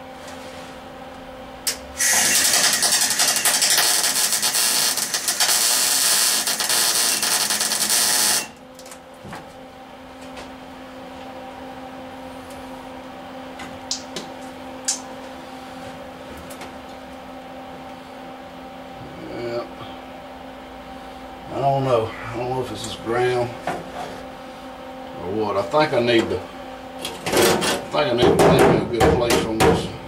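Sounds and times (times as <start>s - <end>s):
steady hum: 0.0s - 30.0s
welder arc crackling: 1.7s - 8.6s.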